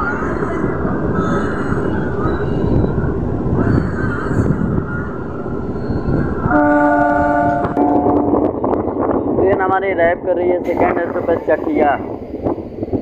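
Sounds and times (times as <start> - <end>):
train wheels rumbling on rails: 0.0 - 13.0
train horn blast: 6.5 - 8.5.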